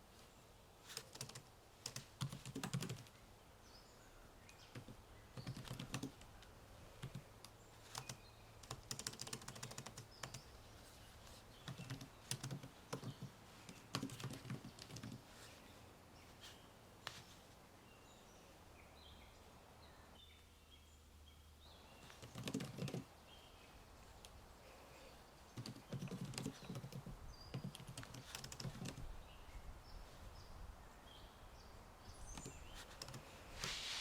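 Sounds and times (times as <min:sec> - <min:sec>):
faint birdsong: 0:00.0 - 0:34.0
computer keyboard typing: 0:01.0 - 0:03.1, 0:04.7 - 0:06.3, 0:07.0 - 0:07.3, 0:07.9 - 0:10.4, 0:11.6 - 0:15.2, 0:22.2 - 0:23.0, 0:25.6 - 0:29.0, 0:32.3 - 0:33.2.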